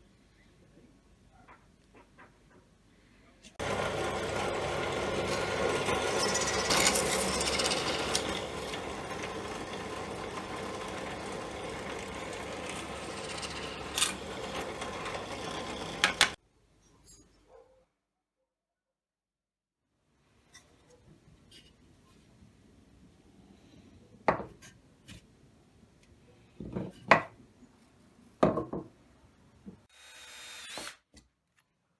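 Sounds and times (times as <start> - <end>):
electric power tool on wood: 3.6 - 16.4.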